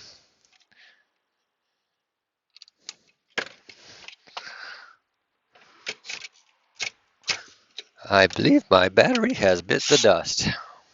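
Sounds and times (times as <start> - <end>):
sharp clicks of hand tools: 5.8 - 10.1.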